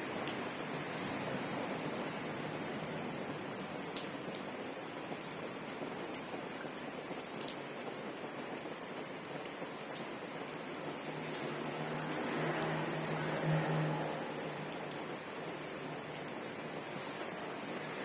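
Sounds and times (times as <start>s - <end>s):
rain falling: 0.0s - 18.0s
water drips ticking: 9.2s - 18.0s.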